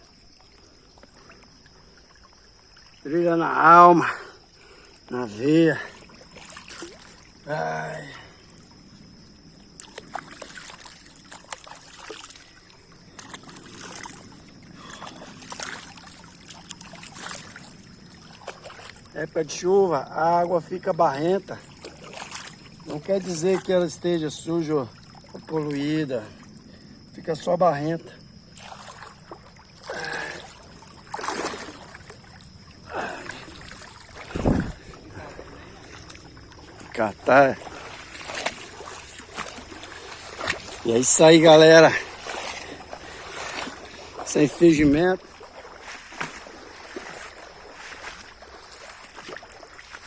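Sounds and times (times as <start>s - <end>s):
river water splashing: 0.0s - 50.0s
water drips: 9.7s - 19.2s, 21.4s - 24.0s, 28.6s - 50.0s.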